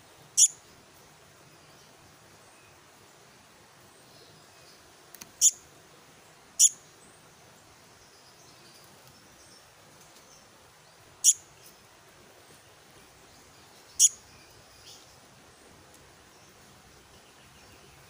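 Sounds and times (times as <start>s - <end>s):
bird chick calling: 14.0s - 14.2s.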